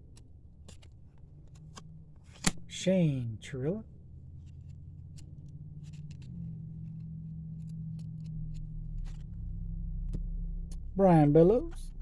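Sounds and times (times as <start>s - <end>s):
steady low hum: 0.0s - 12.0s
cards clicking and sliding: 0.1s - 2.8s, 4.4s - 9.3s.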